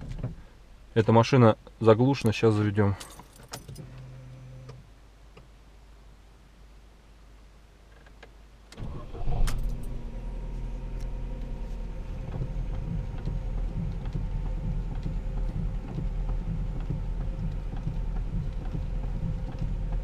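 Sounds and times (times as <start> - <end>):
car engine starting and idling: 3.1 - 4.8, 8.7 - 20.0.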